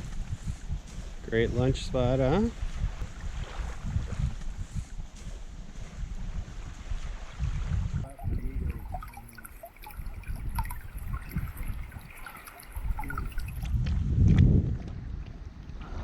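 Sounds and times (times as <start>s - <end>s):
wind rumbling on microphone: 0.0s - 16.0s
faint trickling water: 7.9s - 14.0s.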